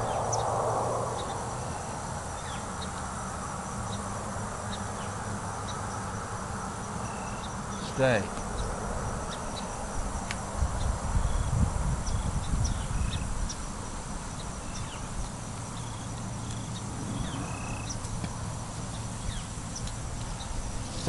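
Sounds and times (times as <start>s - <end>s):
low rumble: 0.0s - 3.1s, 16.7s - 19.5s.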